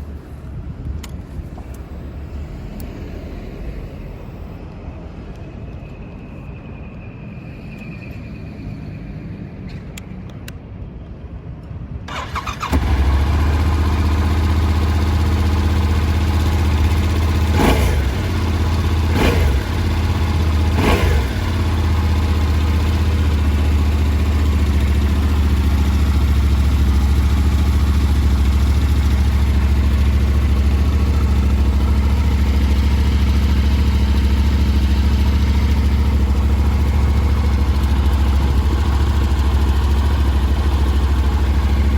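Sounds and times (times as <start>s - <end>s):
motorcycle engine revving and idling: 12.1s - 41.9s
motorcycle engine starting: 12.1s - 41.9s.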